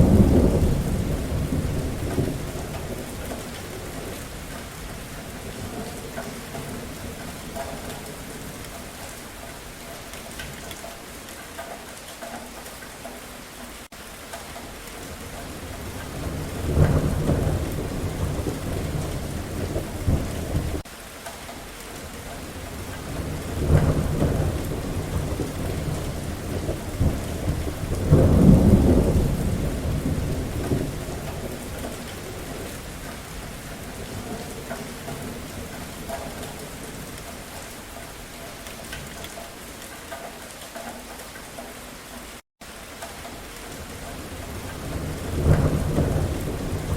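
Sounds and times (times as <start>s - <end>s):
rolling thunder: 0.0s - 8.7s, 15.1s - 20.9s, 22.4s - 37.3s, 43.8s - 46.9s
steady rain falling: 0.0s - 46.9s.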